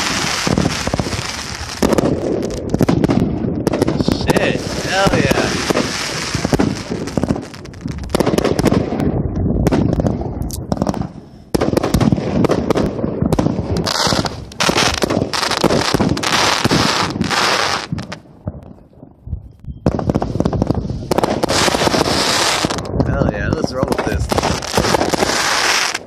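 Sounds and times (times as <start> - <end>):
firework bangs and bursts: 0.0 - 18.7, 19.8 - 26.0.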